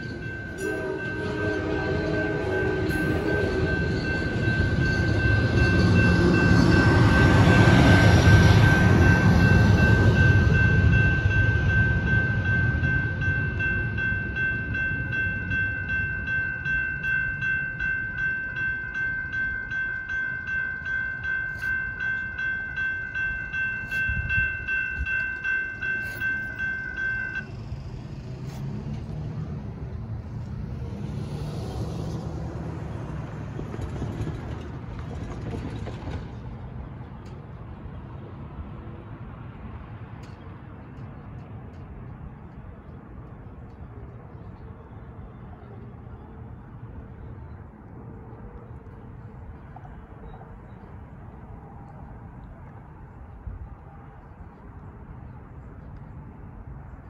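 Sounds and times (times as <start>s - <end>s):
crossing warning bell ringing: 0.0s - 29.0s
road vehicle passing: 0.0s - 57.0s
train passing and rumbling: 0.0s - 57.0s.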